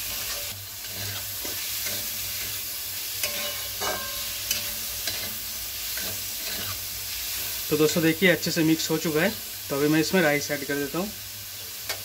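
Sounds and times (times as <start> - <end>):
spatula scraping the pan: 0.0 - 8.0
food sizzling in a wok: 0.0 - 12.0
spatula clinking against wok: 3.2 - 5.4.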